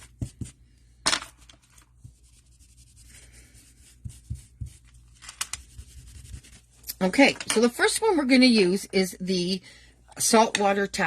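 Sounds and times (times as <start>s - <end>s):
scraping rubs on work table: 2.0s - 4.9s, 5.5s - 6.7s.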